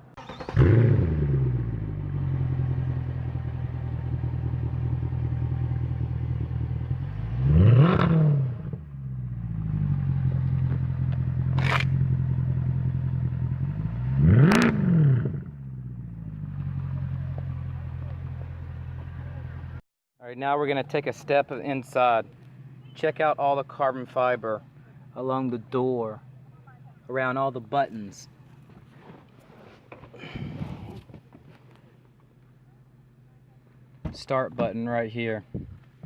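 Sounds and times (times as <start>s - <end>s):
car engine revving and idling: 0.2s - 19.8s
exhaust crack: 0.2s - 19.8s.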